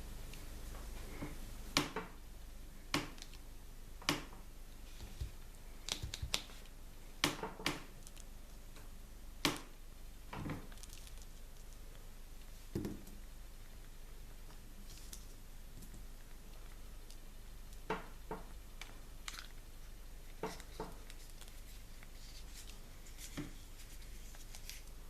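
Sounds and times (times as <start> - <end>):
low steady hum: 0.0 - 25.0
toys and packaging clicking: 5.8 - 6.6.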